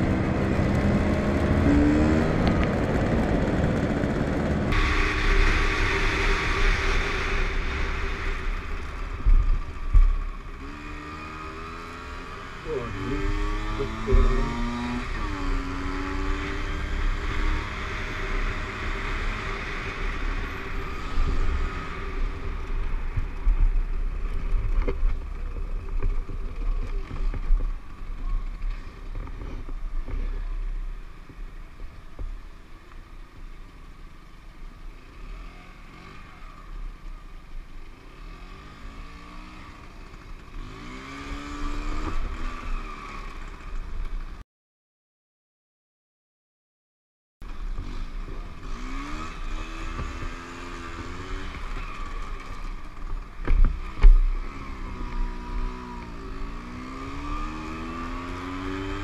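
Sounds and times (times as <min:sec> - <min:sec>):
motorcycle engine running: 0:00.0 - 0:33.1, 0:47.4 - 0:59.0.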